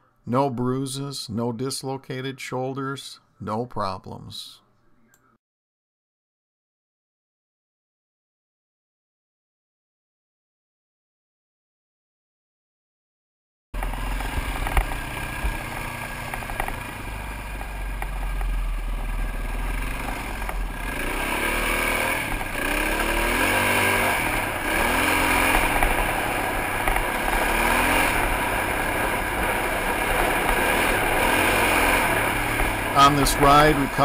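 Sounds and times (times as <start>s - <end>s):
dirt bike engine revving: 13.8s - 34.0s.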